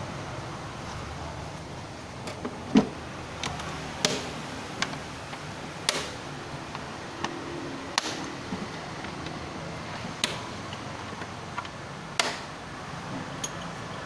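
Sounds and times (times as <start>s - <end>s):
tools and parts clicking: 13.3s - 14.0s.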